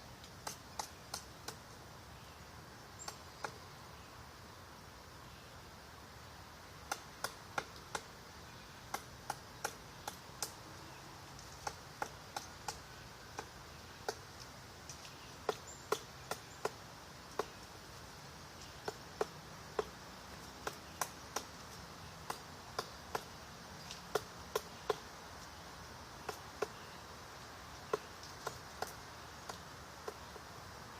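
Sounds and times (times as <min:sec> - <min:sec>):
woodpecker pecking at wood: 0:00.2 - 0:01.6, 0:06.9 - 0:08.1, 0:08.9 - 0:10.6, 0:11.4 - 0:17.6, 0:18.6 - 0:25.1, 0:26.2 - 0:26.8, 0:27.9 - 0:30.4.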